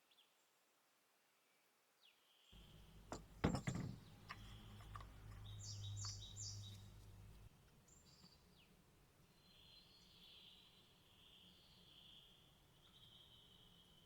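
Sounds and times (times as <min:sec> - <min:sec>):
birds chirping faintly: 0:02.5 - 0:14.0
sharp knocks: 0:02.6 - 0:05.0.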